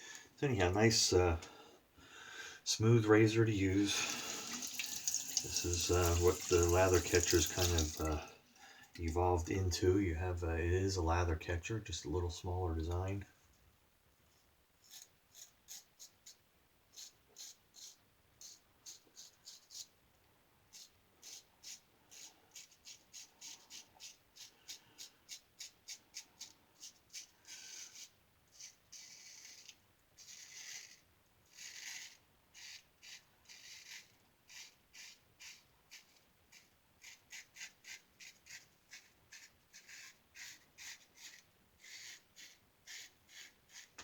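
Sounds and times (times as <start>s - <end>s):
razor scraping stubble: 3.8s - 8.2s, 25.3s - 44.0s.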